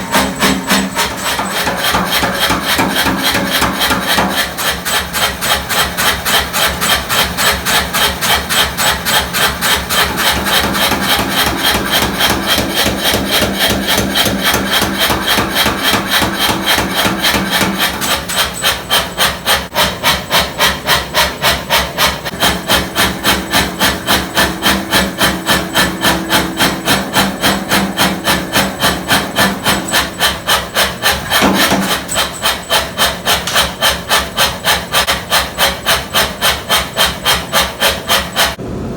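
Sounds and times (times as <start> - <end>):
power hammer striking hot steel: 0.0 - 38.6
motor hum: 7.3 - 38.9.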